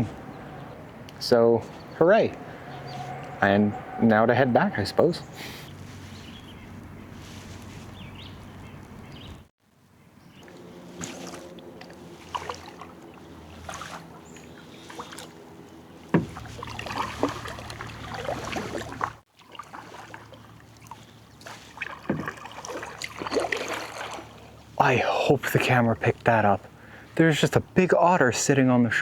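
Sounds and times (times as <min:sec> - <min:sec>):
water splashing and sloshing: 0:00.0 - 0:27.8
kayak paddle strokes in water: 0:05.6 - 0:09.1, 0:10.2 - 0:24.9.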